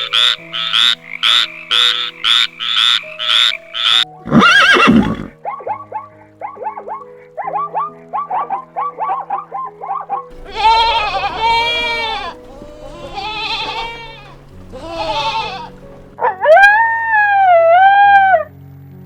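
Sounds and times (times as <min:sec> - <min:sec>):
steady animal call: 0:00.0 - 0:05.4, 0:10.3 - 0:18.4
background music: 0:00.0 - 0:19.0
goat bleating: 0:10.3 - 0:16.1.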